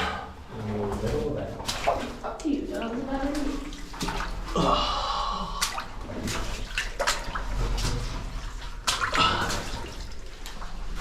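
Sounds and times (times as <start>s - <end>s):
water sloshing as people wade: 0.0s - 11.0s
sharp water splashes: 1.6s - 4.6s, 5.4s - 11.0s.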